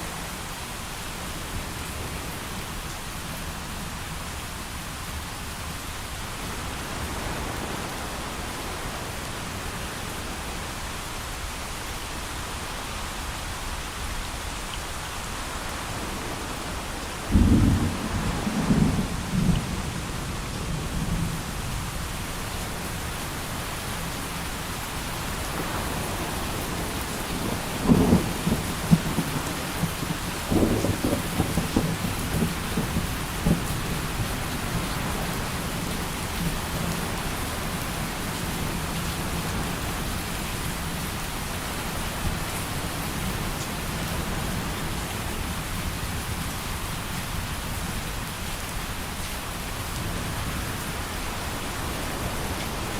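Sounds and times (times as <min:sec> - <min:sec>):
heavy rain falling: 0:00.0 - 0:52.9
thunder rumbling and crackling: 0:16.0 - 0:23.3, 0:25.2 - 0:38.0.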